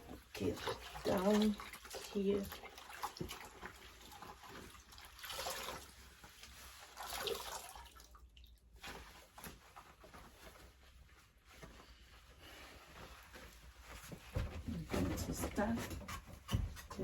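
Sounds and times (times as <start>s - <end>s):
water dripping: 7.0s - 8.6s.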